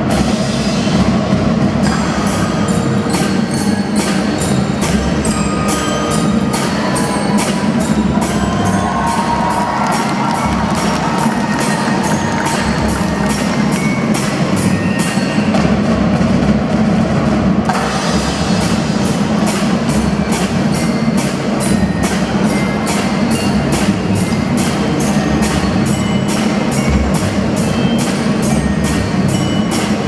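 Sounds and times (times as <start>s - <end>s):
deep drums: 0.0s - 30.0s
bell-like melody: 1.8s - 16.2s, 18.5s - 30.0s
cymbal crashes: 17.7s - 30.0s.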